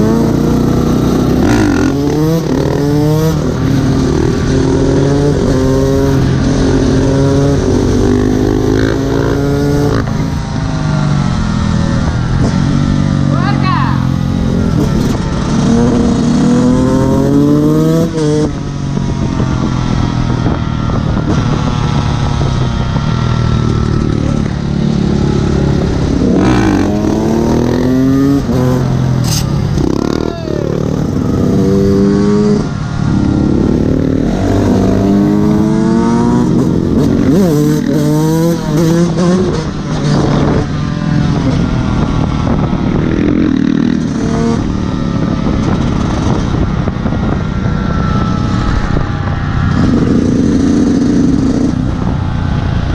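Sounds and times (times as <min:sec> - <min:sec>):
two-stroke engine revving: 0:00.0 - 0:10.4, 0:23.6 - 0:40.7.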